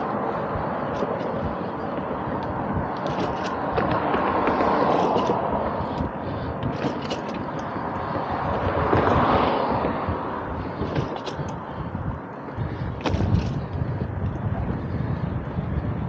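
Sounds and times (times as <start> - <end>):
road noise: 0.0 - 16.0
wind noise: 0.0 - 16.0
small clicks and rattles: 0.9 - 9.2, 10.6 - 11.7.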